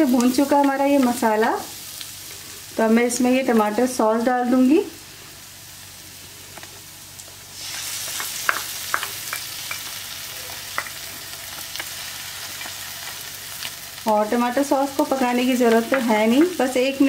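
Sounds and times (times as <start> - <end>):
masala sizzling in a pan: 0.0 - 17.0
small crackles and pops: 6.4 - 13.8.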